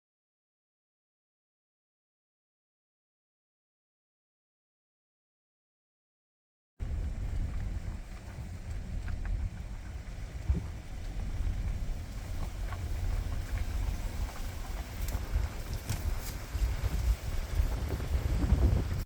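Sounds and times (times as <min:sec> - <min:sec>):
wind buffeting microphone: 0:06.8 - 0:19.0
faint ticks: 0:07.0 - 0:17.2.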